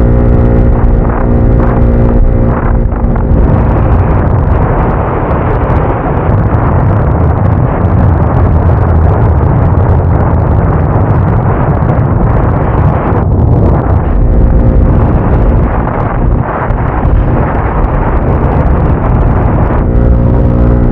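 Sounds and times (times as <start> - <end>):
motorcycle engine running: 0.0 - 6.0, 12.1 - 20.9
wind buffeting microphone: 0.0 - 20.9.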